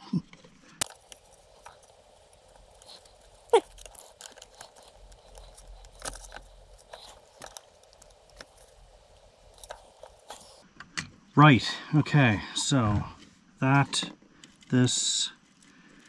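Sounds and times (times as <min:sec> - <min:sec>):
small tools clicking and tapping: 0:00.8 - 0:10.6.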